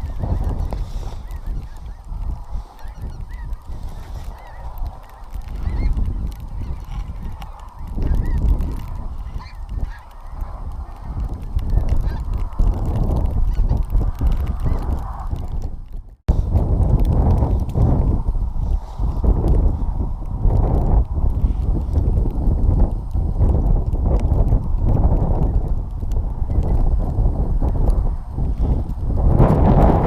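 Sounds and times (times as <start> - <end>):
wild geese calling: 0.0 - 15.2
heavy low rumble: 0.0 - 30.0.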